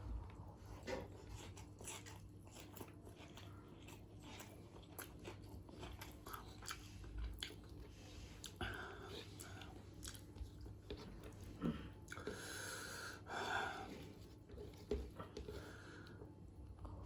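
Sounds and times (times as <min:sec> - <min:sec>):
chewing and crunching food: 0:00.0 - 0:17.0.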